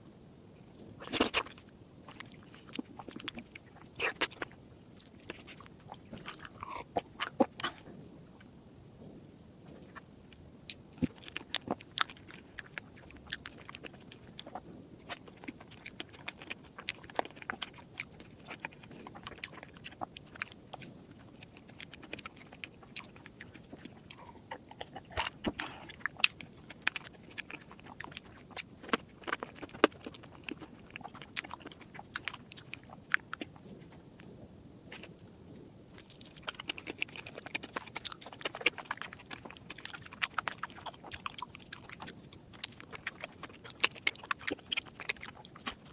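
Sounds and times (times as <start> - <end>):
crunchy chewing: 0.8 - 45.9.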